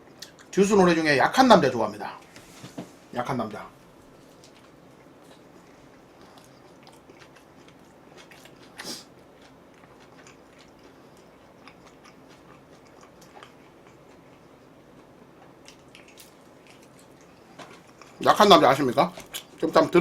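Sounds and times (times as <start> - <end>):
chewing and biting food: 4.2 - 18.3, 19.0 - 19.7
food crunch: 6.2 - 18.2.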